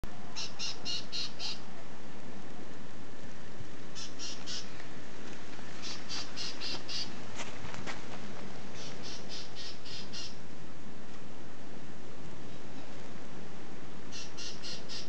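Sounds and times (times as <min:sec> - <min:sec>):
steady background hiss: 0:00.0 - 0:15.0
bird calling high repeated notes: 0:00.4 - 0:01.6, 0:04.0 - 0:04.7, 0:05.8 - 0:07.1, 0:08.8 - 0:10.4, 0:14.1 - 0:15.0.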